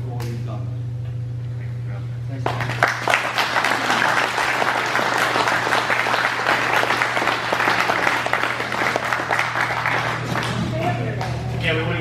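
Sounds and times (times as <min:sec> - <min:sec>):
audience applauding: 0:02.5 - 0:10.8.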